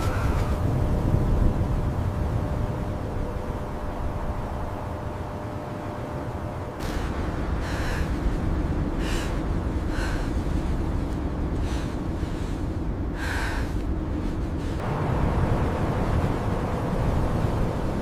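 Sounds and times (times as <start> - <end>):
blizzard wind rumble: 0.0 - 18.0.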